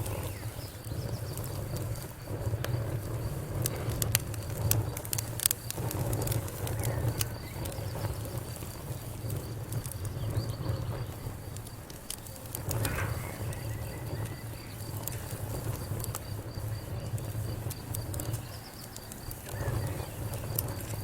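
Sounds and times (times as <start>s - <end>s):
insect chirping: 0.0s - 21.0s
wood fire crackling and popping: 0.0s - 21.0s.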